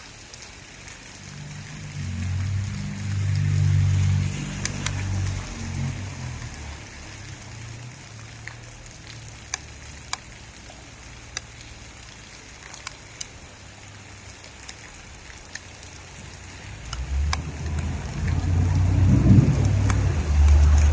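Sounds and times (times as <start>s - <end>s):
steady rain: 0.0s - 20.9s
sharp drops ticking: 0.8s - 20.9s
low thunder rumble: 17.0s - 20.9s.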